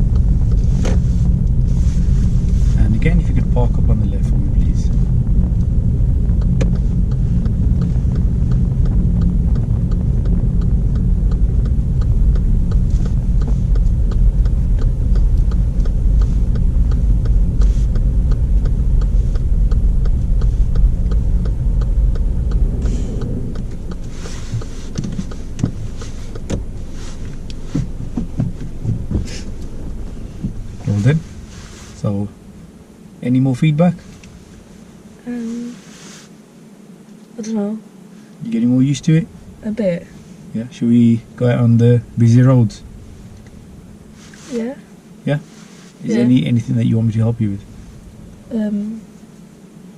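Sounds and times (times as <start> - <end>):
turn indicator ticking: 0.0 - 31.4
car engine and road rumble: 0.0 - 49.9.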